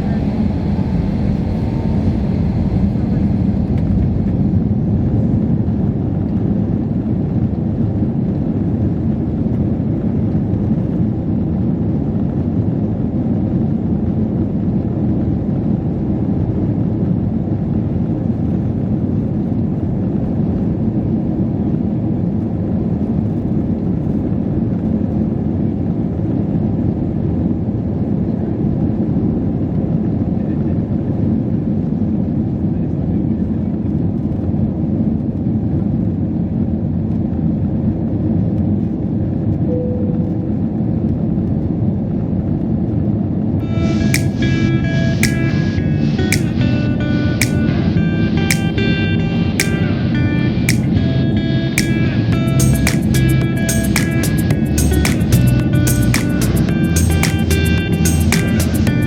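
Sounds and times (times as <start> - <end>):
airliner cabin engine rumble: 0.0 - 13.5.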